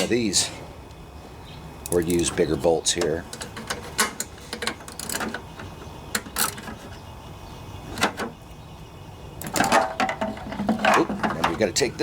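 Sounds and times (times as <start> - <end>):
tools clicking and knocking: 3.0 - 6.8.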